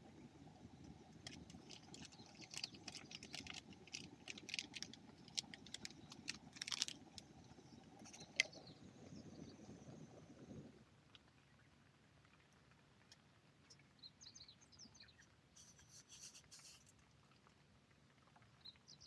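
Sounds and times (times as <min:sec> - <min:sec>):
rain falling on a tent: 0:00.0 - 0:08.6
sharp ticks and crackles: 0:00.8 - 0:08.7.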